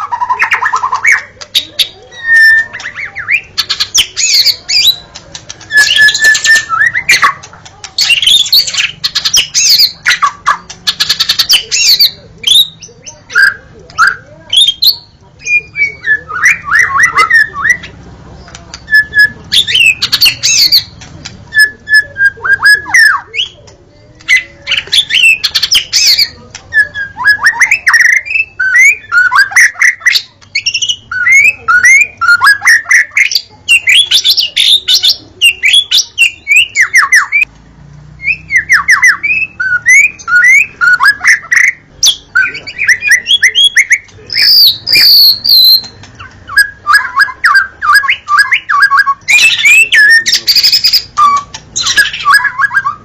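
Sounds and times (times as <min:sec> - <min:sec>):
bird singing whistled phrases: 0:00.0 - 0:05.0, 0:05.7 - 0:07.4, 0:24.3 - 0:37.5, 0:38.2 - 0:53.0.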